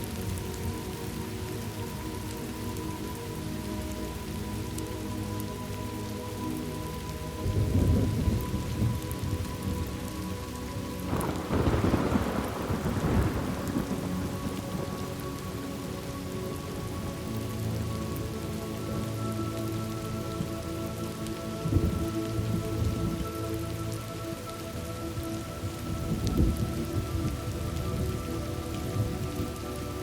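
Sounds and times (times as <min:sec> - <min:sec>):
steady rain: 0:00.0 - 0:30.0
rolling thunder: 0:11.1 - 0:15.0.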